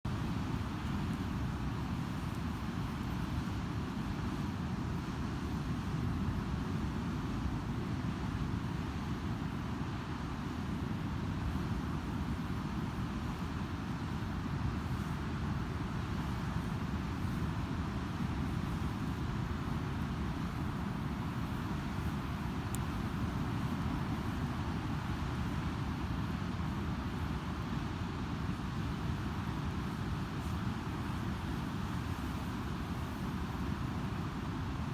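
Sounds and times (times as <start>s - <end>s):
campfire crackling: 19.0s - 27.5s.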